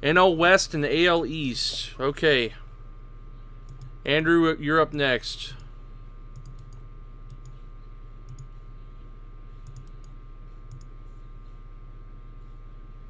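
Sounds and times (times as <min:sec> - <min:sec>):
low electrical hum: 0:00.0 - 0:13.0
computer mouse clicking: 0:06.4 - 0:07.6, 0:08.3 - 0:08.5, 0:09.6 - 0:10.9.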